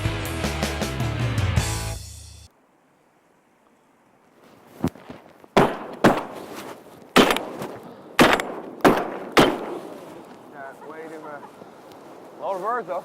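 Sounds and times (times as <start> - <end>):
shotgun blasts echoing: 5.6 - 6.5, 7.2 - 10.2.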